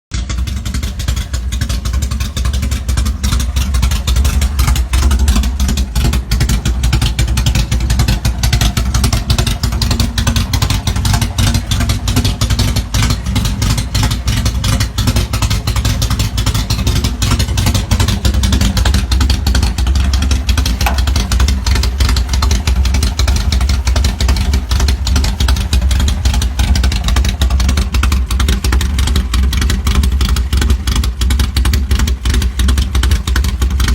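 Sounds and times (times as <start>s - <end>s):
engine running loud exhaust: 0.1s - 33.9s.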